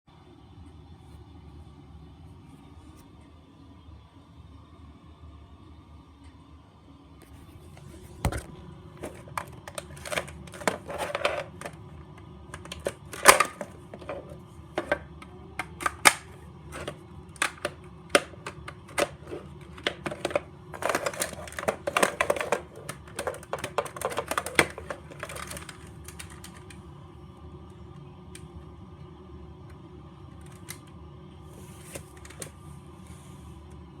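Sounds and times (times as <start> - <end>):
plastic toy parts clicking: 9.0 - 11.8, 12.5 - 26.8.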